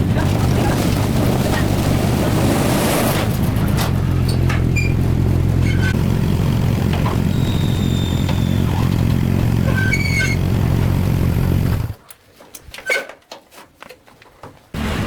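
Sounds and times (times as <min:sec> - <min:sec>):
motorbike engine running: 0:00.0 - 0:12.0.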